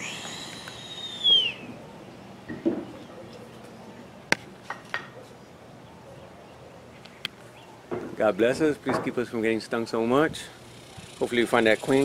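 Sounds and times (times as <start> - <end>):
high whistled bird call: 0.0 - 1.8.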